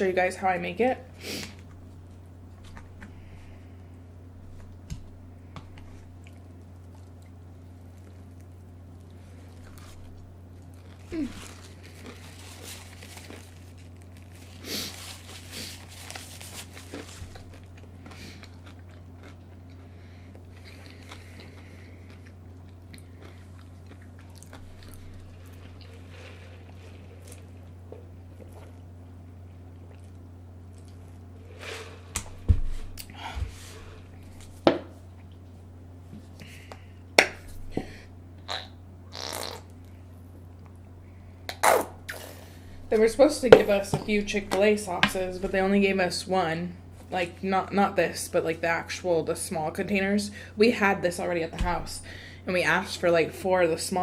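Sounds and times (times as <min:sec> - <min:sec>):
steady low hum: 0:00.0 - 0:54.0
person chewing food: 0:05.5 - 0:32.4.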